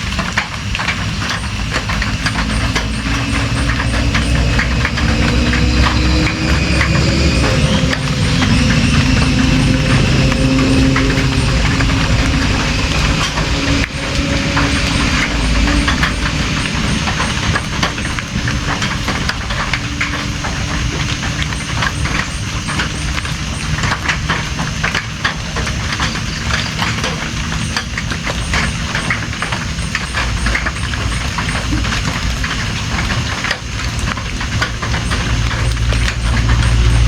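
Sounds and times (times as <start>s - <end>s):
heavy rain: 0.0s - 37.0s
raindrops tapping on a surface: 0.0s - 37.0s
low rumble: 0.9s - 25.0s.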